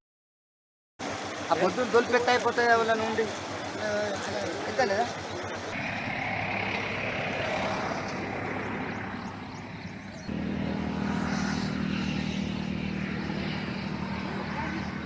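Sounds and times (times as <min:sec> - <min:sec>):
low engine hum: 0:01.0 - 0:15.0
stream water rushing: 0:01.0 - 0:15.0.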